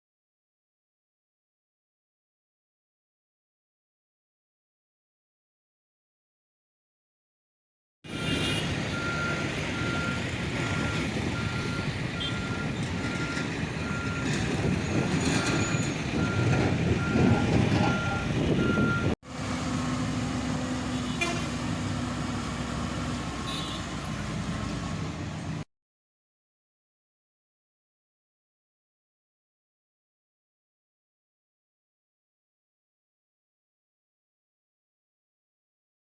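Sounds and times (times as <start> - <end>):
diesel engine rumble: 8.1 - 25.6
reversing alarm beeping: 8.2 - 19.2.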